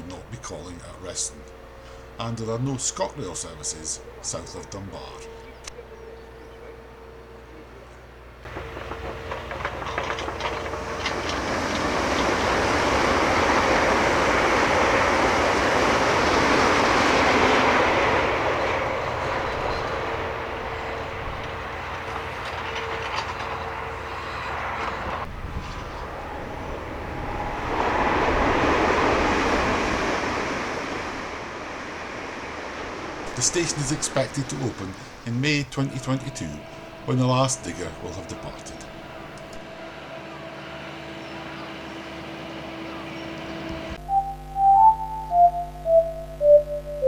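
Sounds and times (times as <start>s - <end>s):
train passing at speed: 0.0s - 44.0s
wheels clicking over rails: 8.4s - 31.3s, 32.0s - 44.0s.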